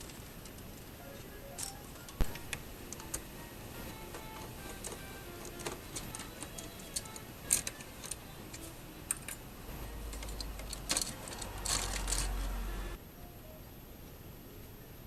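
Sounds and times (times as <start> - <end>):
low hum: 0.0 - 13.6
small tools and plastic clicking: 1.5 - 12.7.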